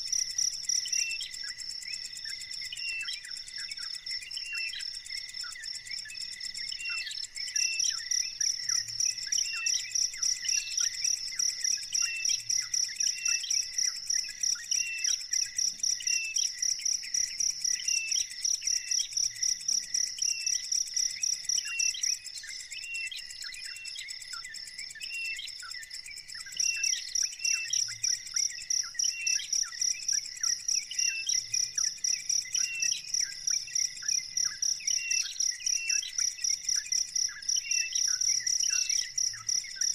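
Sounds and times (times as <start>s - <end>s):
insect trill: 0.0s - 39.9s
bird chirping: 20.3s - 39.9s.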